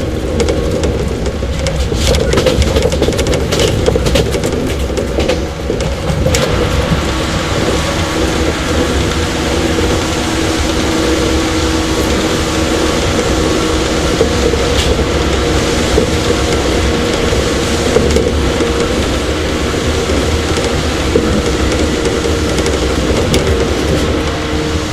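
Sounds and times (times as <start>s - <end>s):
rolling rail noise: 0.0s - 24.9s
train motor and gear hum: 0.0s - 24.9s
sharp clicks from track: 0.3s - 7.8s, 19.8s - 24.4s.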